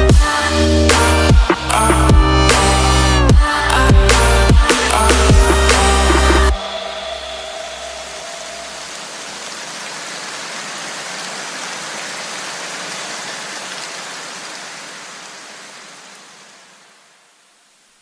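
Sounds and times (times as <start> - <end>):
steady rain falling: 4.2 - 18.0.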